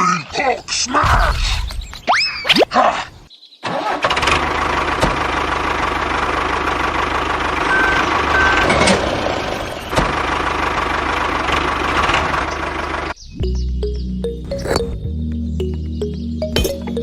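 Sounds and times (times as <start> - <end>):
diesel engine clattering: 3.8 - 14.5.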